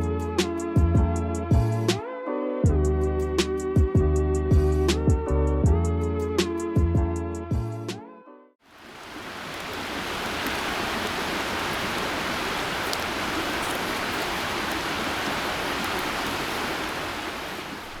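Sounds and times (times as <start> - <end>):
steady rushing noise: 8.8 - 18.0
faint clicks: 9.0 - 18.0.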